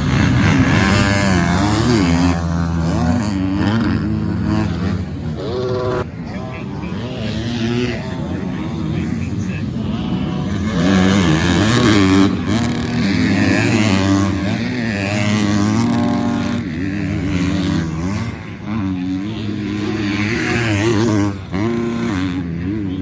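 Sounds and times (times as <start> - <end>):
motocross bikes revving: 0.0 - 23.0.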